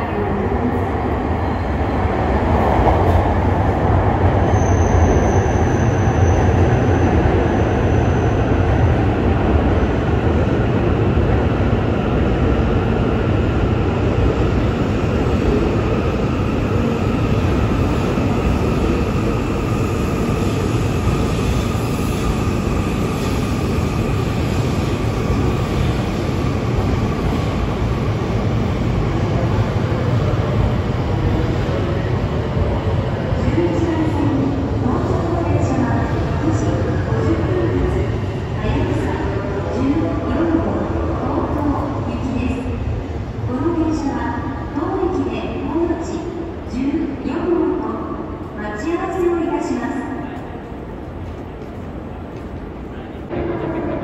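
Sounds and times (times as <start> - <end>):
train rumbling past: 49.9 - 54.0.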